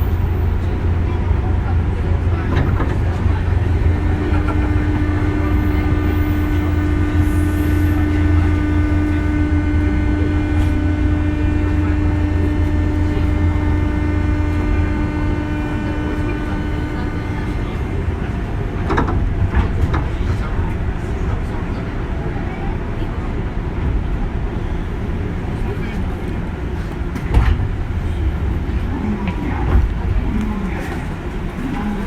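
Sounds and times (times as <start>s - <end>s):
train rumble: 0.0s - 32.0s
electrical hum: 0.2s - 18.8s.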